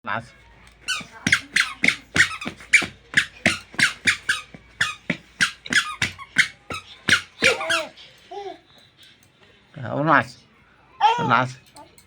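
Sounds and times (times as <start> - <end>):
rapid high squeaks: 0.9 - 7.9.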